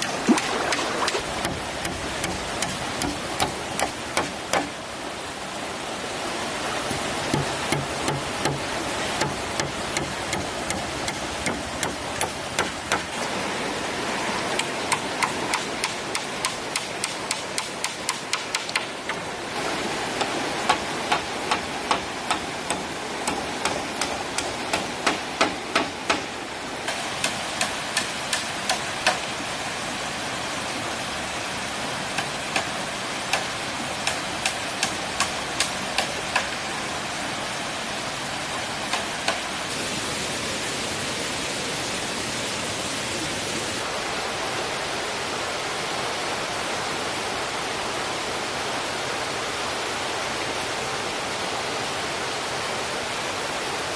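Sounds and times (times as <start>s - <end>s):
stream rushing: 0.0s - 53.9s
tool knocking on bamboo: 0.3s - 4.8s, 6.9s - 8.6s, 9.2s - 13.1s, 14.6s - 19.2s, 20.7s - 26.3s.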